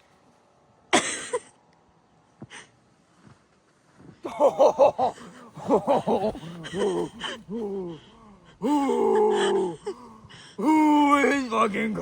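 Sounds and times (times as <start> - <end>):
laughter: 4.2 - 7.8
man gasping: 6.4 - 10.6.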